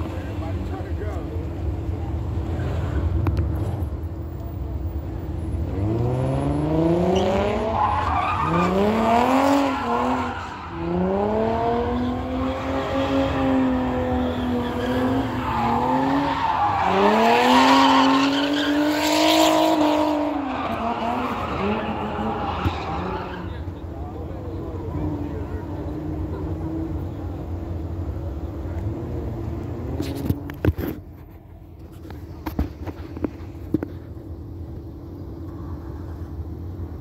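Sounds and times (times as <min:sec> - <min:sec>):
tires squealing: 0:05.0 - 0:27.2
car engine revving: 0:05.4 - 0:24.0.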